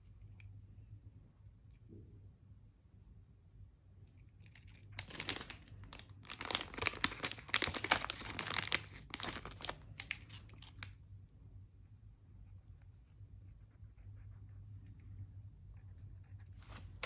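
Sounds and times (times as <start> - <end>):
paper crinkling and tearing: 5.0 - 10.9.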